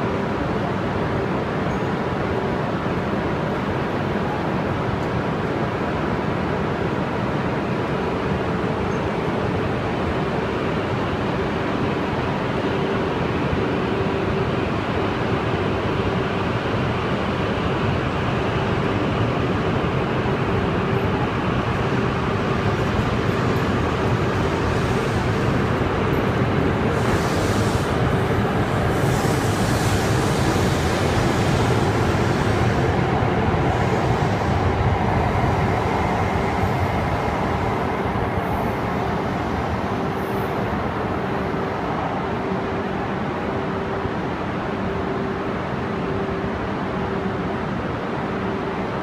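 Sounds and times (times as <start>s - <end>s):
train cars rumbling past: 17.9s - 45.3s.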